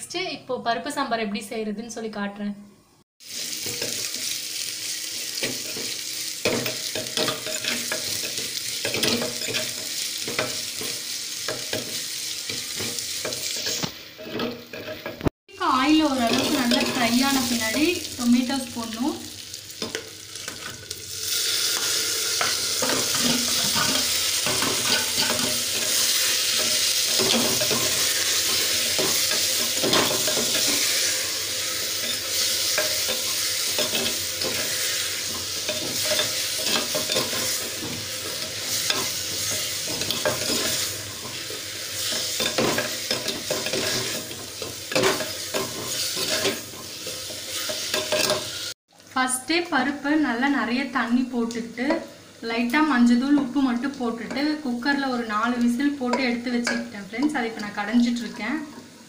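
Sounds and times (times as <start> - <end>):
vegetables sizzling in oil: 3.2 - 59.0
spoon stirring and scraping: 5.4 - 10.9, 11.5 - 15.2, 21.8 - 48.6.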